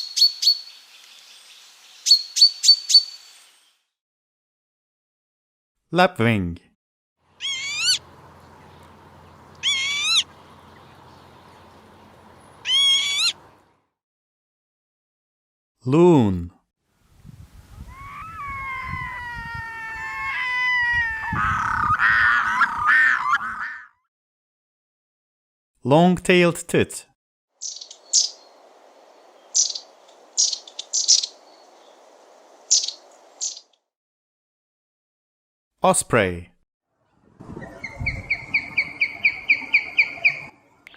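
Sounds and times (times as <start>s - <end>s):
lapwing calling: 7.4s - 13.6s, 17.8s - 23.9s, 27.6s - 33.7s, 37.6s - 40.9s
faint steady hiss: 27.8s - 33.5s.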